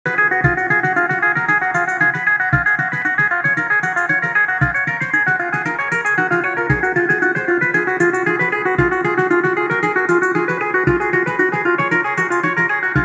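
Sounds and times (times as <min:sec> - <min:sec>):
synthesizer plucked notes sequence: 0:00.0 - 0:13.0
kick drum hits: 0:02.5 - 0:02.7, 0:08.8 - 0:09.0, 0:10.9 - 0:11.1.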